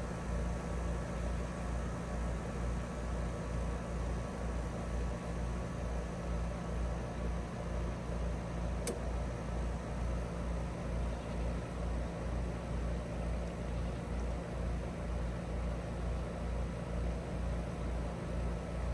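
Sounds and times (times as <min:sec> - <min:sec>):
heat pump humming: 0:00.0 - 0:18.9
short click: 0:08.8 - 0:09.0.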